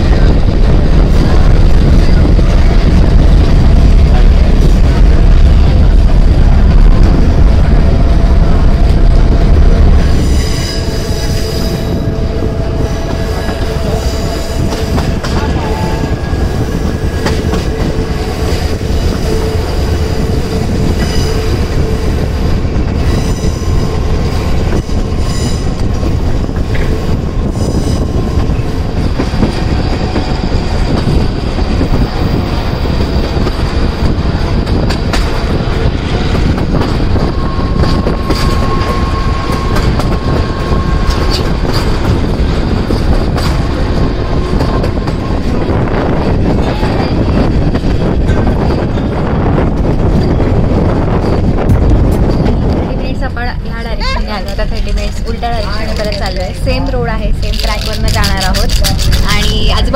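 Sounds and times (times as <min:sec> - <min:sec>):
train coaches rumbling: 0:00.0 - 0:59.9
steel wheels squealing on rails: 0:09.9 - 0:51.6.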